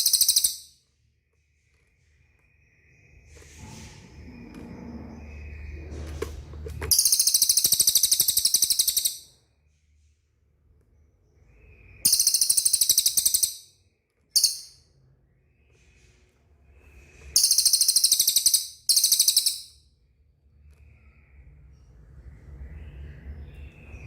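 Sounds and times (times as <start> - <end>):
bird trilling: 0.0 - 0.8, 6.9 - 9.4, 11.8 - 13.7, 14.3 - 14.9, 17.3 - 19.8.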